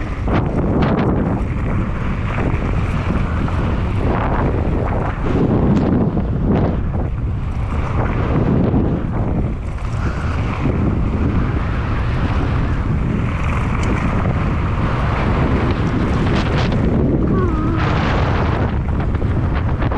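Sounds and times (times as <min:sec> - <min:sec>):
bike rattling over rough ground: 0:00.0 - 0:17.3
wind buffeting microphone: 0:00.0 - 0:19.9.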